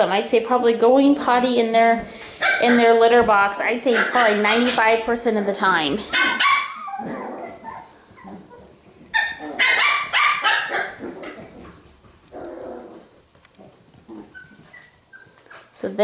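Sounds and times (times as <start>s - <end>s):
puppies yipping and barking: 3.8s - 4.9s, 6.0s - 11.8s, 14.0s - 15.8s
puppy whimpering: 6.0s - 11.5s, 14.0s - 15.8s.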